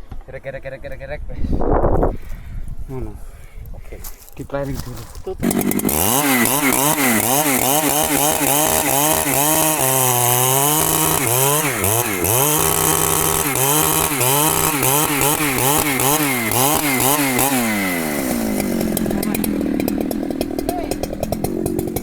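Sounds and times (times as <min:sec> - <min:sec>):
chainsaw cutting wood: 0:05.4 - 0:22.0.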